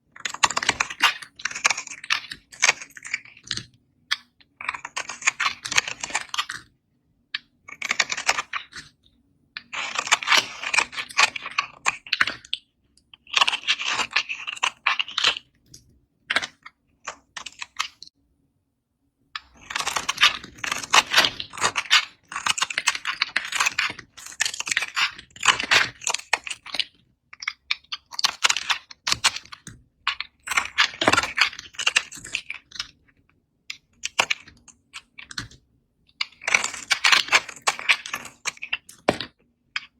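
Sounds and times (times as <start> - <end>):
knife cutting dry soap: 7.4 - 9.0, 9.6 - 18.1.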